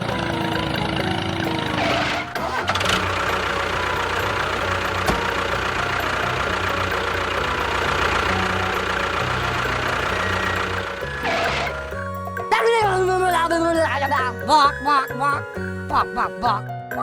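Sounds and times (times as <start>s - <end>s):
motor humming: 0.0s - 12.5s.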